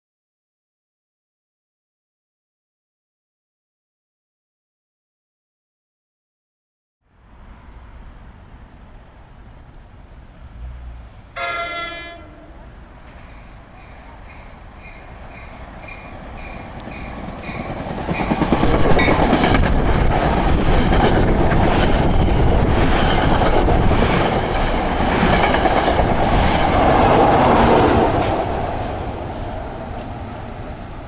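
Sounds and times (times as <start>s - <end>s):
train rushing by: 7.2s - 31.0s
wheels clicking over rail joints: 14.9s - 31.0s.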